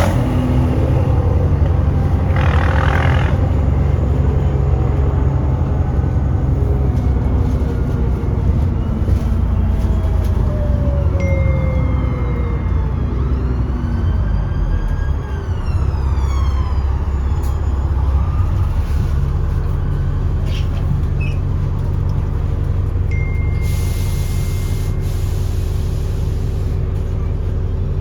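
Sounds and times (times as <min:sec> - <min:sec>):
bus engine rumble: 0:00.0 - 0:28.0.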